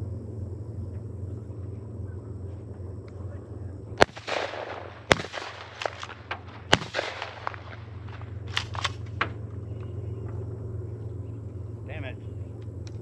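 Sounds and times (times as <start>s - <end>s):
shotgun shots: 4.0s - 9.4s.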